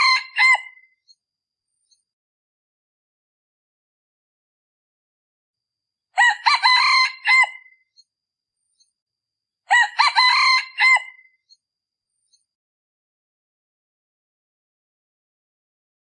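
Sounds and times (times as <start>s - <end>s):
rooster crowing: 0.0s - 0.8s, 6.2s - 7.8s, 9.7s - 11.3s.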